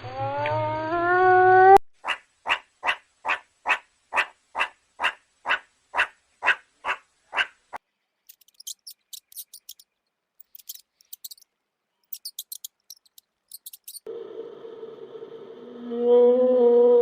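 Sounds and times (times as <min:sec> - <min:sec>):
small animal high-pitched chirps: 0:08.3 - 0:11.4, 0:12.1 - 0:14.1.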